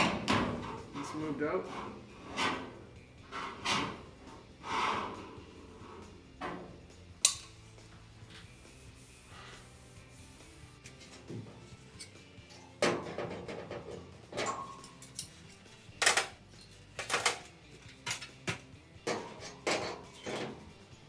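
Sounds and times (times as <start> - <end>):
metal tools tapping sheet metal: 6.3 - 7.6, 12.0 - 20.7.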